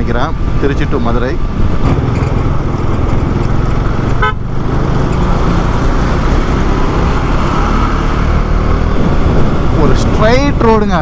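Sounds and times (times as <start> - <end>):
motorcycle engine and road rumble: 0.0 - 11.0
wind noise: 0.0 - 11.0
horn toot: 4.2 - 4.5.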